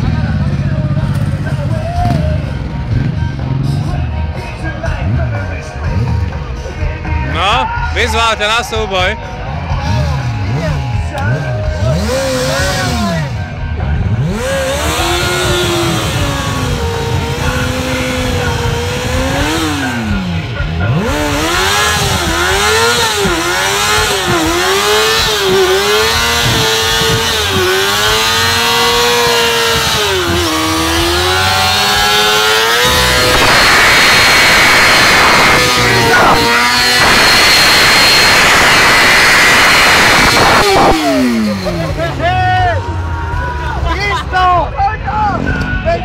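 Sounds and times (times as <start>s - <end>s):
motorcycle engine revving: 0.0s - 44.1s
steady rushing noise: 29.8s - 42.9s.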